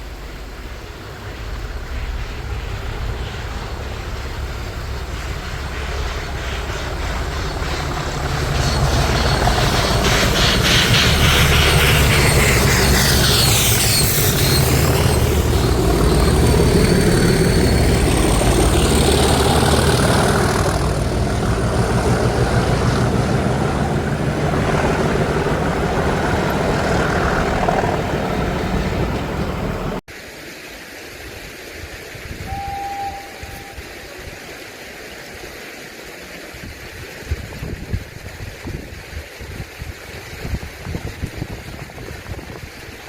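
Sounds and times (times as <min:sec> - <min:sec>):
train passing close by: 0:00.0 - 0:30.3, 0:32.1 - 0:43.0
short high tone: 0:32.5 - 0:33.9.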